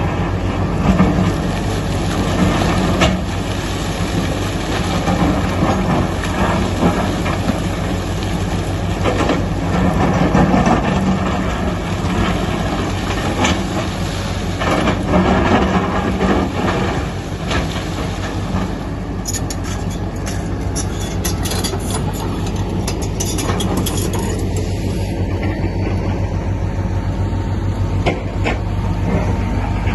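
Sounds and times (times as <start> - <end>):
excavator diesel engine running: 0.0 - 29.9
metallic clanks and knocks: 19.2 - 24.7.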